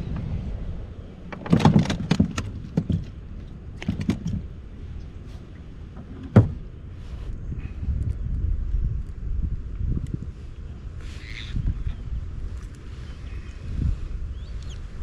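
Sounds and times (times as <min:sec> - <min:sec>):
wind rumble on microphone: 0:00.0 - 0:15.0
gear knocking and clattering: 0:01.3 - 0:04.6.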